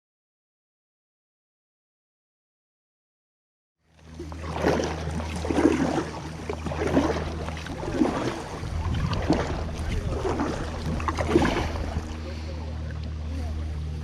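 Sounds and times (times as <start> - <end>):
kayak paddle splashing water: 3.9 - 14.0
wind rumble on microphone: 5.5 - 12.3.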